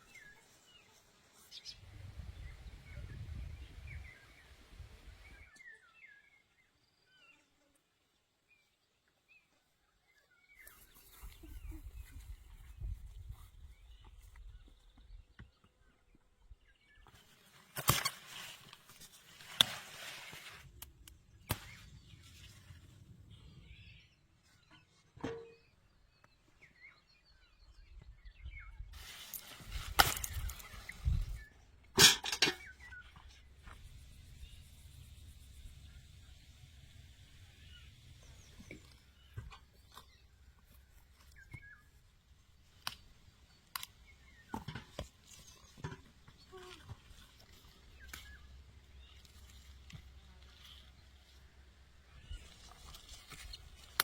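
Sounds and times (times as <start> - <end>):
rustle of handling: 17.2 - 20.9, 29.0 - 31.4, 45.2 - 54.0.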